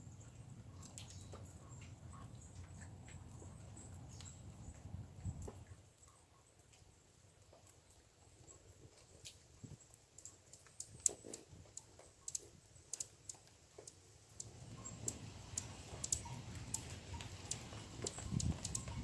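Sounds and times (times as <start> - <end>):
squirrels clicking and tapping: 9.1 - 19.0.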